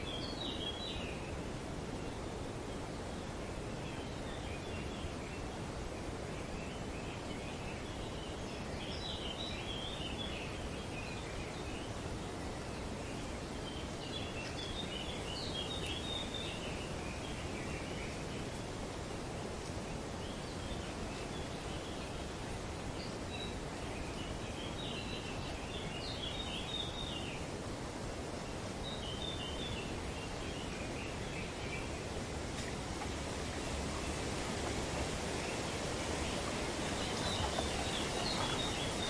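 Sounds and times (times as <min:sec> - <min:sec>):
wind rustling through trees: 0:00.0 - 0:39.0
birds chattering: 0:29.4 - 0:39.0.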